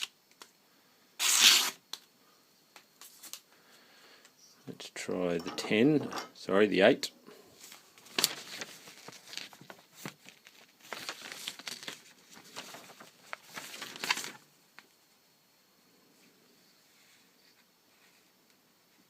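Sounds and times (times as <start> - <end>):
knife slicing through paper: 1.2 - 1.8.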